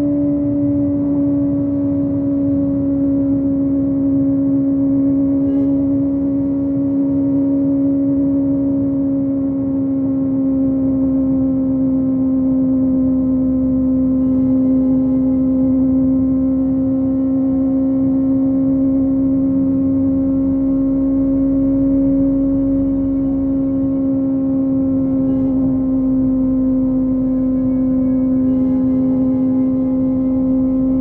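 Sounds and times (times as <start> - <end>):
motorcycle engine at high revs: 9.2 - 31.0.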